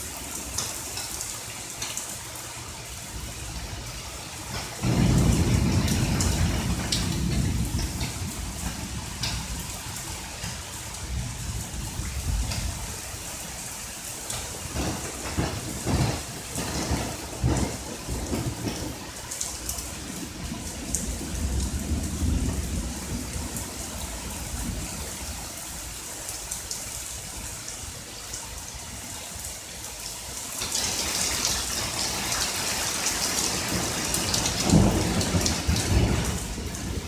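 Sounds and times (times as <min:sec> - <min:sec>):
steady rain: 0:00.0 - 0:37.0
rolling thunder: 0:03.0 - 0:26.0, 0:30.7 - 0:37.0
loud thunderclap: 0:04.5 - 0:25.4, 0:33.0 - 0:37.0.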